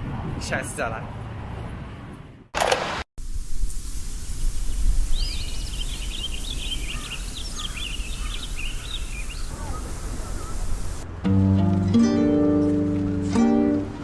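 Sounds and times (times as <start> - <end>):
songbird singing: 3.7 - 11.0.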